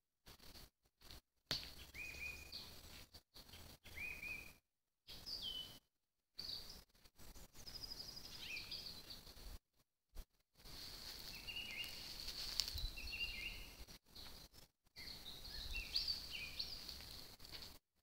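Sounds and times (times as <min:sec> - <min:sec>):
small songbirds whistling: 0:01.7 - 0:02.8, 0:03.4 - 0:05.8, 0:07.4 - 0:09.3, 0:11.2 - 0:17.3.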